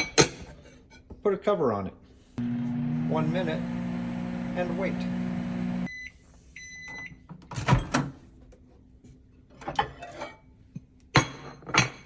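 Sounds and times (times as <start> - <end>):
microwave oven humming: 2.4 - 6.1
microwave beeps: 2.4 - 7.2.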